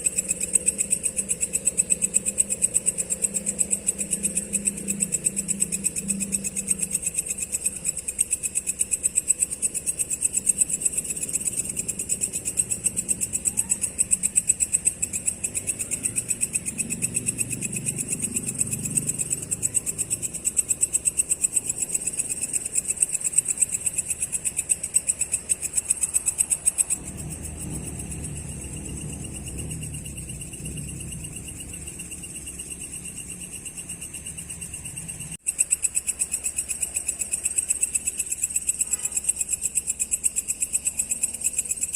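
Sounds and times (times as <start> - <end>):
crickets chirping: 0.0 - 41.9
low rumble: 26.4 - 35.3.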